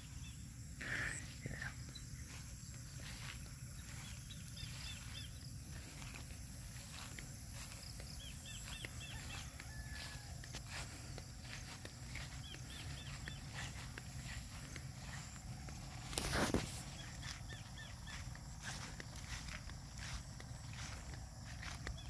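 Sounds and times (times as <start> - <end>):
steady low rumble: 10.4 - 22.0
bird calling: 16.2 - 19.0.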